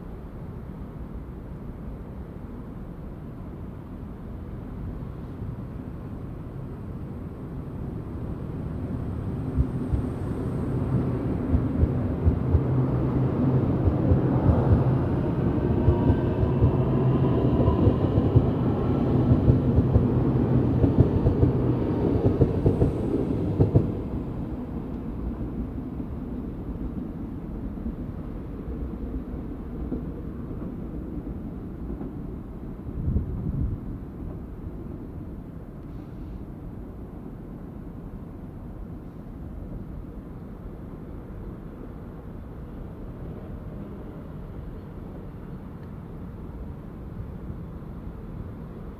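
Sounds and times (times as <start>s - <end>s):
train whine shifting in pitch: 7.0s - 26.7s
train wheels clacking over rails: 9.5s - 24.2s.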